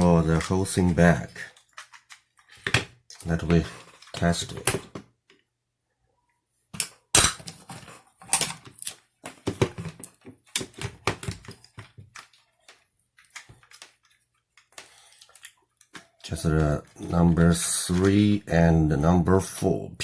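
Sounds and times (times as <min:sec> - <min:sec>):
clicks and knocks of handling: 0:00.0 - 0:05.5, 0:06.8 - 0:17.0.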